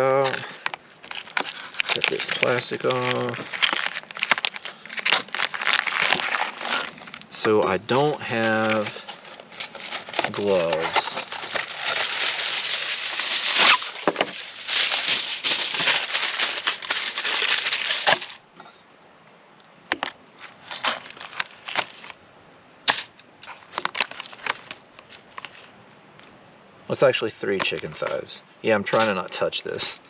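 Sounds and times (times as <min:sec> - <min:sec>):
plastic packaging crinkling and tearing: 0:00.0 - 0:18.4, 0:20.0 - 0:22.2, 0:22.9 - 0:25.8
small crackles and clicks: 0:00.2 - 0:07.3.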